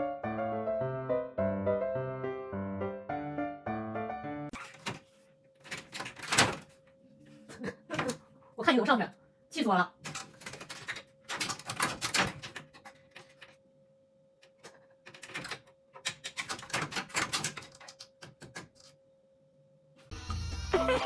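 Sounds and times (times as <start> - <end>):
music: 0.0 - 4.6, 20.1 - 21.0
faint steady hum: 6.6 - 10.0, 12.8 - 15.1.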